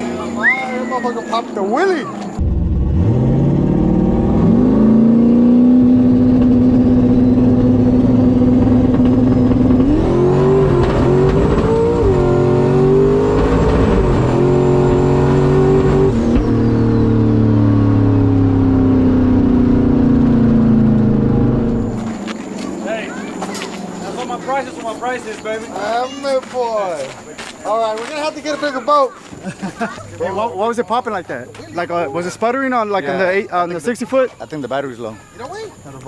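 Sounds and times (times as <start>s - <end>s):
truck engine running hard: 0.0s - 26.0s.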